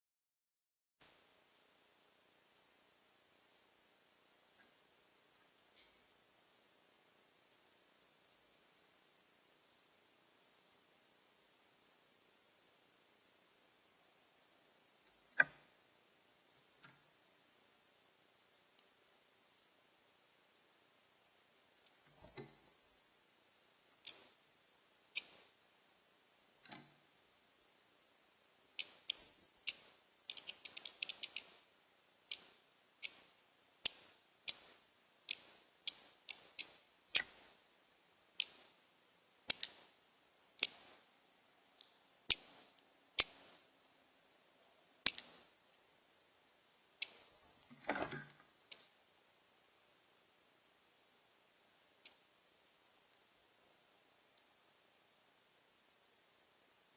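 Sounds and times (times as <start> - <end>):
birds making sharp high ticks: 18.7 - 19.1, 21.2 - 22.1, 24.0 - 24.3, 25.1 - 25.4, 28.8 - 31.6, 32.3 - 33.2, 33.8 - 37.4, 39.5 - 39.8, 45.0 - 45.4, 47.0 - 47.3, 52.0 - 52.3.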